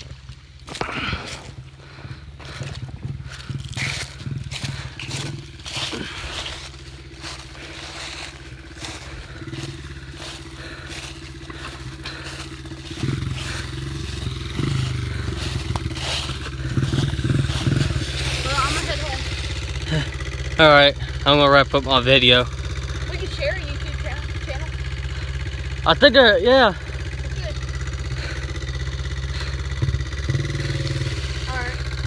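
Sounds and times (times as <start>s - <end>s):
dirt bike engine idling: 0.0s - 32.0s
footsteps: 0.6s - 20.2s.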